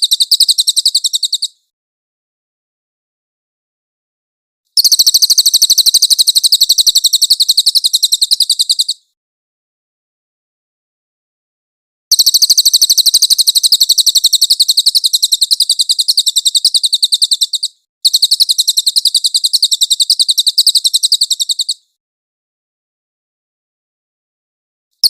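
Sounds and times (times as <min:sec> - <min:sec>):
bird trilling: 0:00.0 - 0:01.6, 0:04.8 - 0:09.0, 0:12.1 - 0:21.9.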